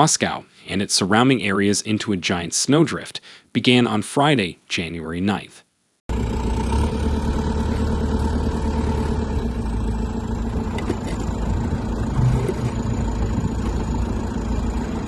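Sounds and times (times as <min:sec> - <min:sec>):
faint steady hum: 0:06.1 - 0:15.0
vehicle engine rumbling: 0:06.1 - 0:15.0.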